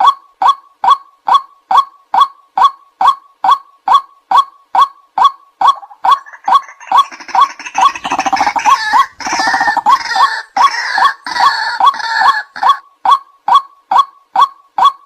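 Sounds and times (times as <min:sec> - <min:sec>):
bird kwak calls: 0:00.0 - 0:15.0
harsh chattering chorus: 0:06.1 - 0:12.7.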